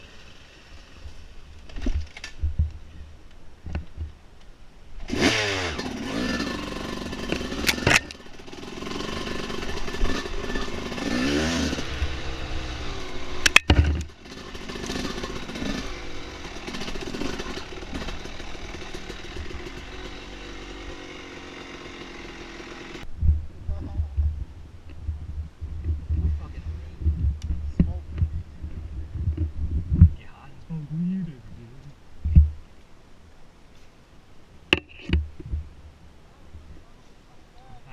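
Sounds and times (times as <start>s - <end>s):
dirt bike engine revving: 5.0s - 23.1s.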